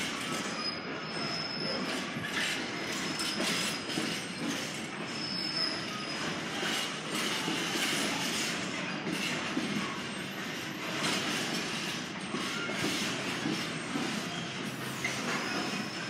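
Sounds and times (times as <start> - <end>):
high-pitched wheel squeals: 0.0 - 8.5, 12.2 - 16.0
train rumbling on rails: 0.0 - 16.0.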